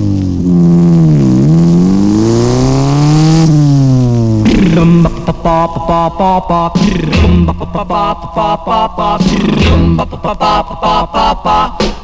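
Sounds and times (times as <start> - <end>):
motorcycle engine revving: 0.0 - 12.0
doo-wop rock and roll music: 4.4 - 12.0.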